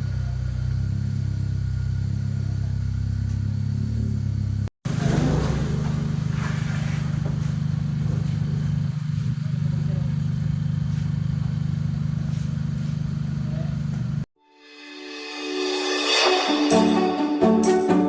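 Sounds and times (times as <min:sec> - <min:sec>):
car engine running: 0:00.0 - 0:14.3.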